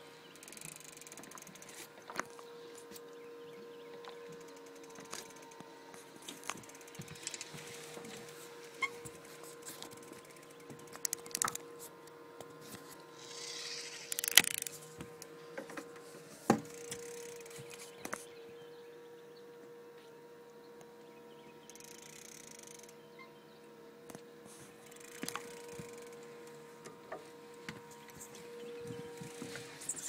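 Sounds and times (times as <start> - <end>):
boat engine hum: 0.0 - 30.0
fishing gear clicks and knocks: 9.0 - 11.6, 14.1 - 14.9, 24.9 - 26.2.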